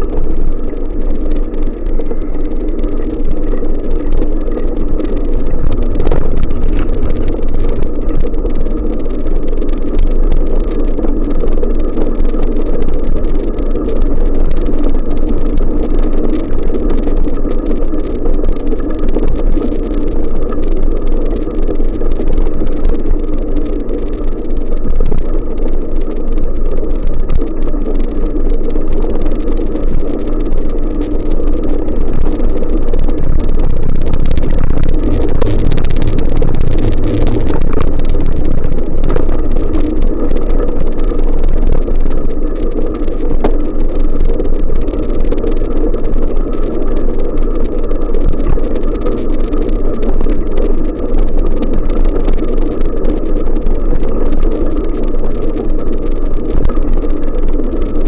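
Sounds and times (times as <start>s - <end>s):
wind buffeting microphone: 33.0s - 39.8s.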